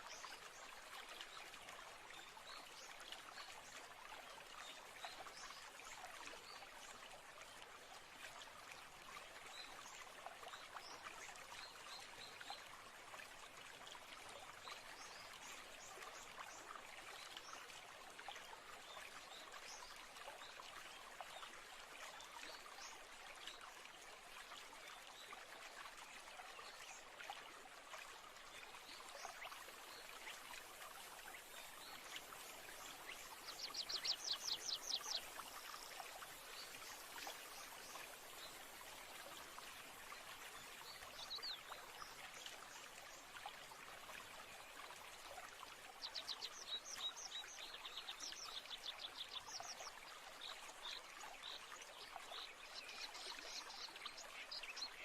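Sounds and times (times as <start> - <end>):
stream babbling: 0.0 - 55.0
birds singing: 32.8 - 37.7.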